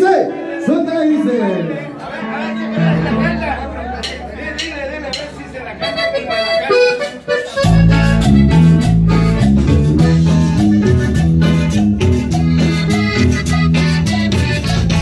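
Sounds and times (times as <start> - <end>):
strummed guitar: 1.8 - 15.0
bass line: 2.1 - 15.0
steady drum beats: 2.7 - 6.2, 7.4 - 15.0.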